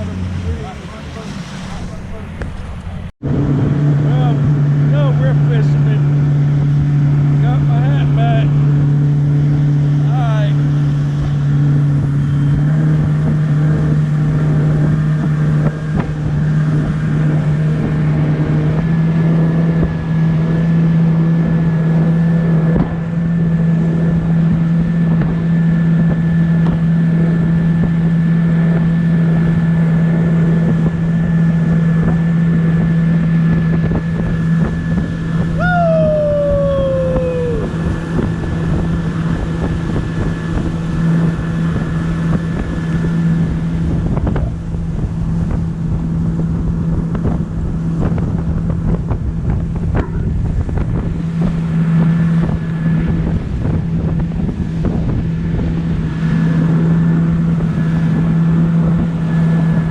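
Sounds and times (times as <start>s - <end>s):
motorboat engine running: 0.0s - 59.9s
wind buffeting microphone: 0.0s - 59.9s
falling whistle-like tone: 35.6s - 37.7s.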